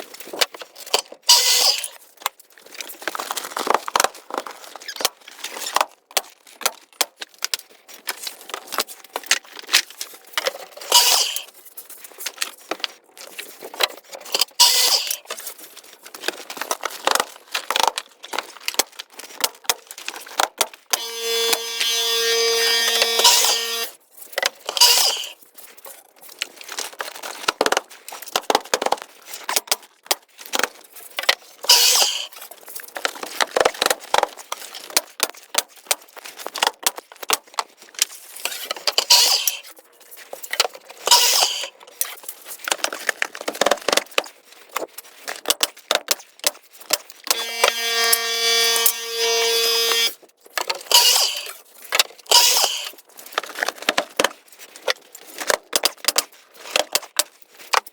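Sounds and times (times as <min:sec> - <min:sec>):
motor whining: 0:14.6 - 0:15.2, 0:21.0 - 0:24.0, 0:24.8 - 0:25.3, 0:31.7 - 0:32.3, 0:47.3 - 0:50.2, 0:50.9 - 0:51.5, 0:52.3 - 0:52.9.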